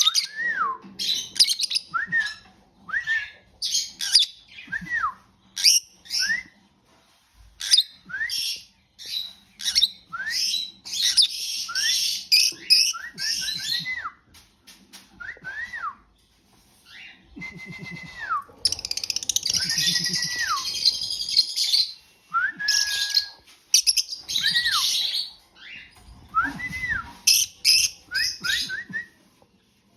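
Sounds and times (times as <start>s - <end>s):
lovebirds chattering: 18.6s - 22.0s.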